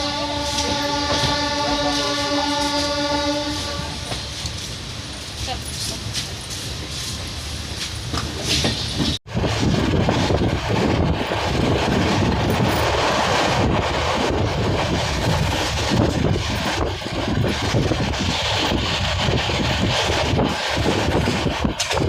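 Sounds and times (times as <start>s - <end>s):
wheels clacking over rail joints: 0.0s - 9.2s, 10.0s - 22.0s
train coaches rumbling and rattling: 0.0s - 22.0s.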